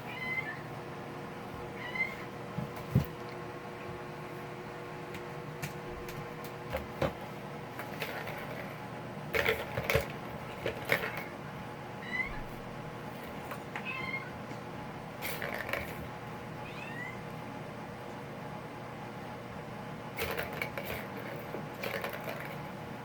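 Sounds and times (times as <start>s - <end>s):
toys knocking and rattling: 7.8s - 11.3s, 15.3s - 16.0s, 20.2s - 22.7s.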